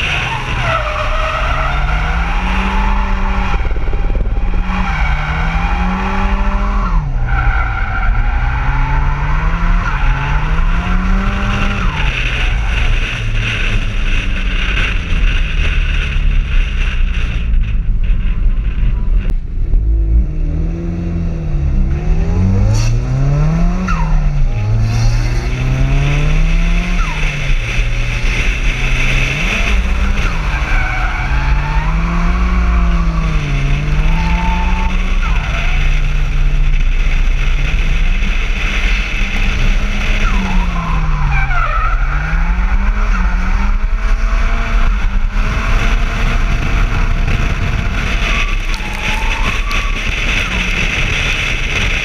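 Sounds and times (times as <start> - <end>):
car engine revving: 0.0 - 52.0.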